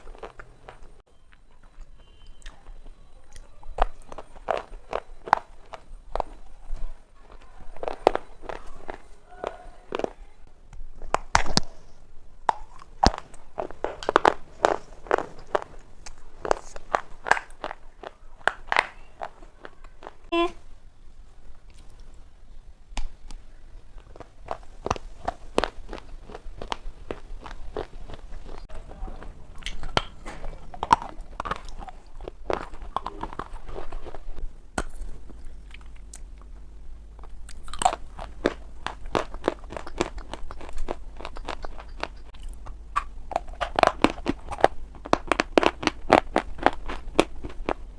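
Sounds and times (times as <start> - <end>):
stone being chewed crunching: 0.0 - 10.2, 12.5 - 20.2, 24.0 - 36.5, 37.2 - 47.9.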